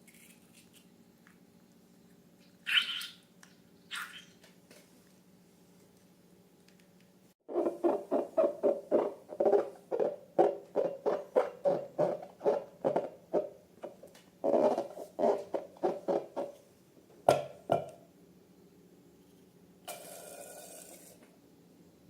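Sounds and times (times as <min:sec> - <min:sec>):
rubber balloon squeaking: 0:07.5 - 0:13.5, 0:14.4 - 0:16.6.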